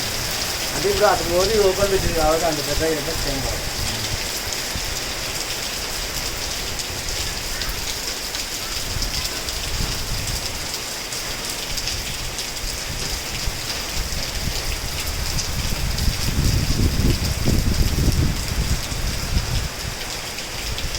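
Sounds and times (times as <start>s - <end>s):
heavy rain hissing: 0.0s - 20.9s
raindrop taps: 12.9s - 13.8s.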